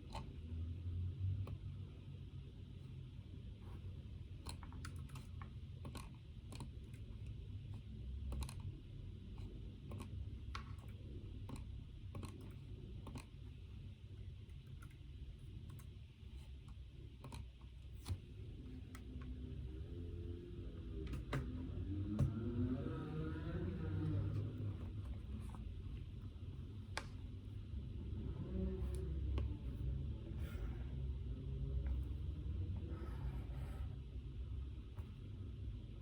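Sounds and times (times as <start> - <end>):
faint low hum: 0.0 - 36.0
typing on computer keyboard: 4.4 - 7.0, 8.2 - 8.8.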